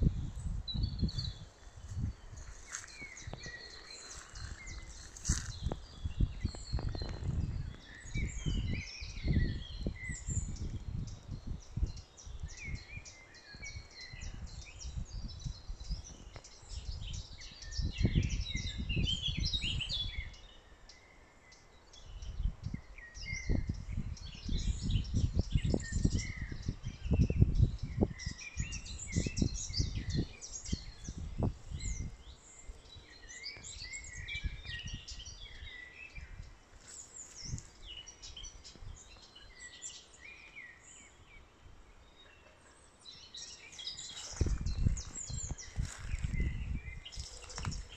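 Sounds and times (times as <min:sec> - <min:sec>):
low rumbling on microphone: 0:00.0 - 0:12.8, 0:44.0 - 0:47.9
small birds chirping and singing: 0:00.0 - 0:47.9.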